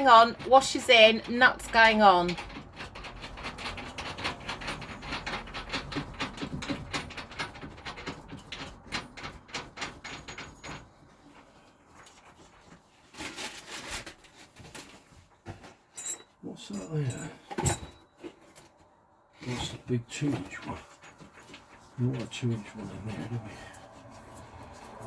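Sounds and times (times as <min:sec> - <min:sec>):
small metal parts clicking and rattling: 0:00.1 - 0:11.4.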